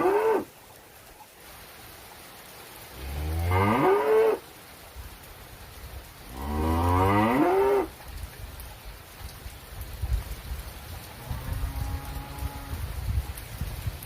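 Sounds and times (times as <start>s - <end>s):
rain: 0.0s - 14.0s.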